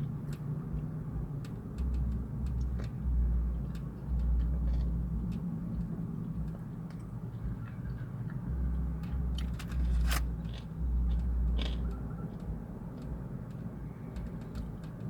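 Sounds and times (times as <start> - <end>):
deep bass from car stereo: 0.0 - 15.0
light clicks and taps: 0.2 - 3.0, 11.2 - 15.0.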